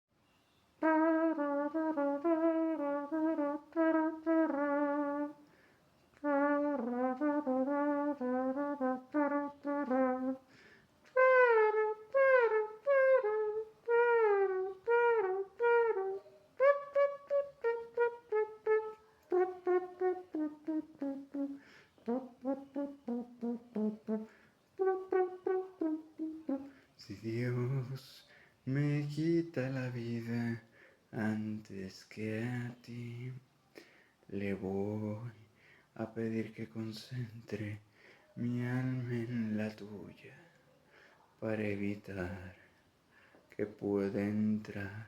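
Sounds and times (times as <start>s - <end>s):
person imitating a trumpet: 6.2s - 10.5s, 11.1s - 26.7s.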